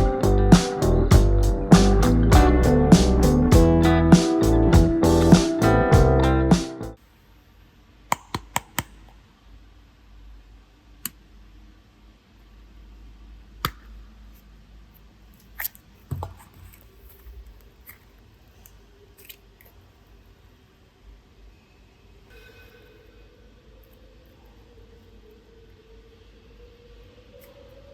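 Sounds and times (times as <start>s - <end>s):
heavy low knock: 0.0s - 6.2s.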